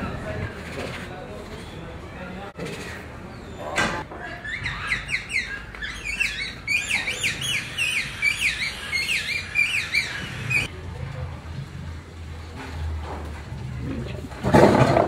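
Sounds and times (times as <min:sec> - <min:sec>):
birds chirping: 0:00.0 - 0:10.7.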